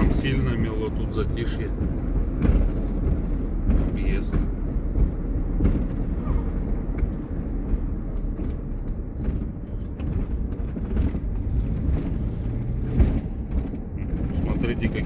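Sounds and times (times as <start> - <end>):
engine and road rumble: 0.0 - 15.0
small knocks and rattles: 1.7 - 15.0.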